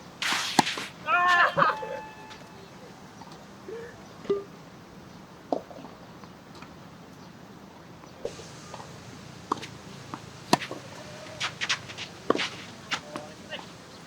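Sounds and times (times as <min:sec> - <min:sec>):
tennis ball knocks: 0:00.2 - 0:03.6, 0:08.2 - 0:14.0.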